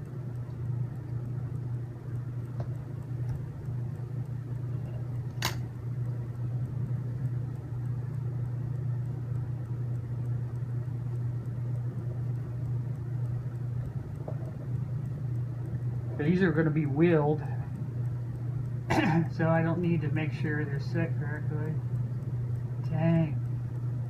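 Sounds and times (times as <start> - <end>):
low mechanical hum: 0.0 - 24.0
sharp click of small part: 5.4 - 5.6.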